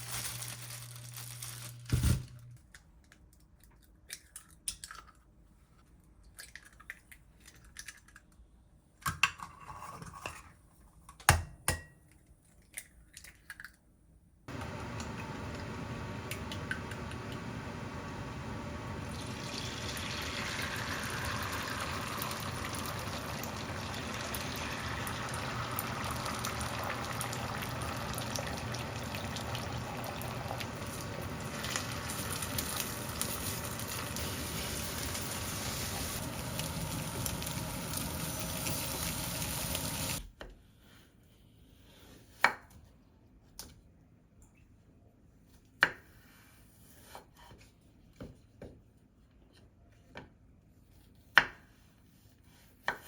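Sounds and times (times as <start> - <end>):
tap water running into sink: 19.0 - 40.2.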